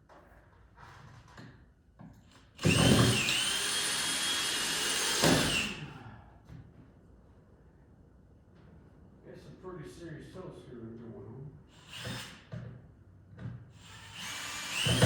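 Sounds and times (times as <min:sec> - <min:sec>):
cordless drill motor whine: 0:02.6 - 0:05.8, 0:13.8 - 0:15.0.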